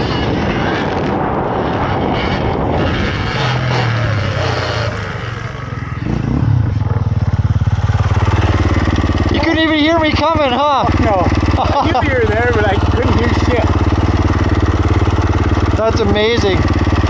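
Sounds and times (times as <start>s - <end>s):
dirt bike engine: 0.0s - 17.0s
wind: 0.0s - 17.0s.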